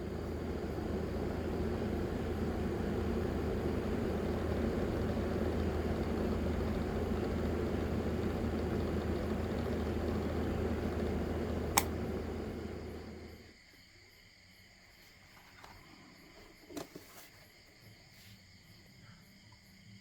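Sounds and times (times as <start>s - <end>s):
small motor fan humming: 0.0s - 13.5s
sharp click: 11.7s - 12.1s.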